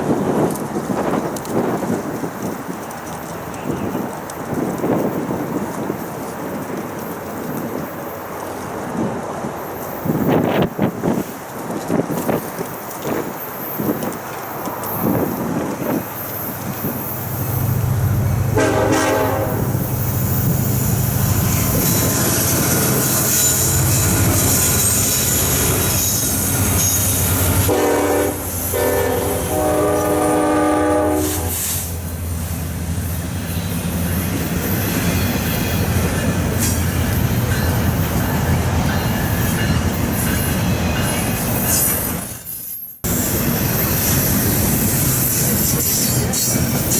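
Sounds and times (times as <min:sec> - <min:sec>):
diesel locomotive drone: 0:00.0 - 0:46.9
train wheels squealing on rails: 0:00.0 - 0:46.9
locomotive air horn blasts: 0:18.5 - 0:19.9, 0:27.5 - 0:31.9.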